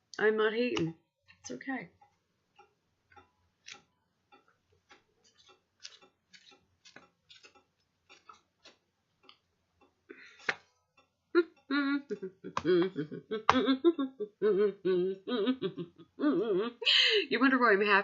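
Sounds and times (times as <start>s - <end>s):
cards clicking and tapping: 10.2s - 10.7s.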